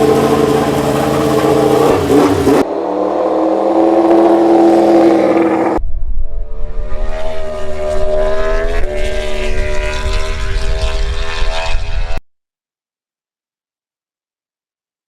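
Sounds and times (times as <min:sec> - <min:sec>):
racing engine at high revs: 0:00.0 - 0:05.8, 0:06.4 - 0:12.2.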